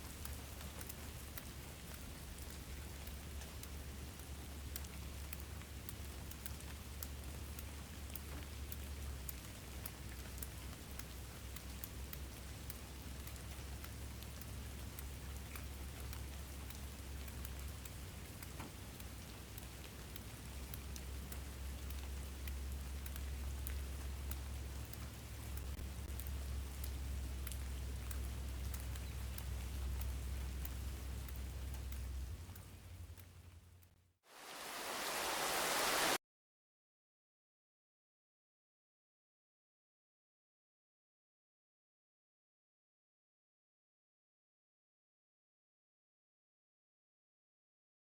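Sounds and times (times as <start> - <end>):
raindrops ticking on a surface: 0.0 - 36.2
steady rain: 0.0 - 36.2.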